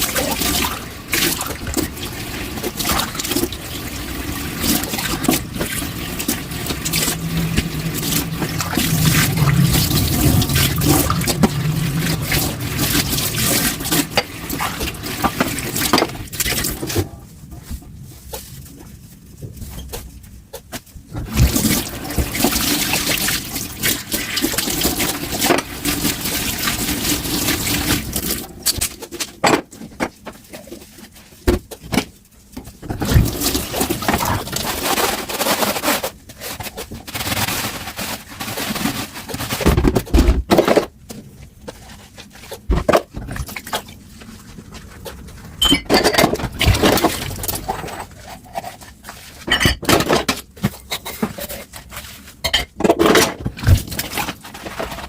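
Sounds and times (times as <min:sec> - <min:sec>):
dishes clinking: 0:45.6 - 0:46.4, 0:49.5 - 0:50.2.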